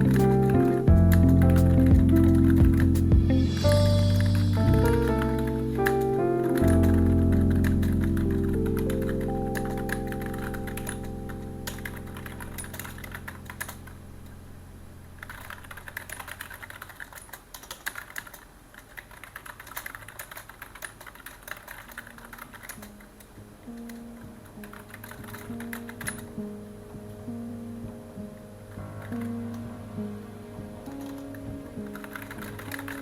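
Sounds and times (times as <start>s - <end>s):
soft background music: 0.0s - 16.8s, 21.7s - 33.0s
typing on computer keyboard: 15.2s - 23.1s.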